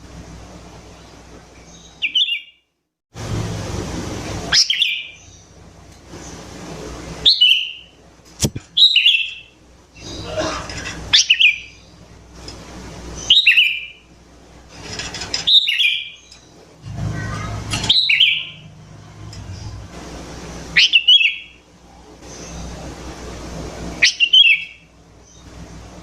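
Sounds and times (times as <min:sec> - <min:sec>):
sharp click: 0:08.4 - 0:08.8
bulbul calling: 0:17.2 - 0:18.6, 0:24.0 - 0:24.8.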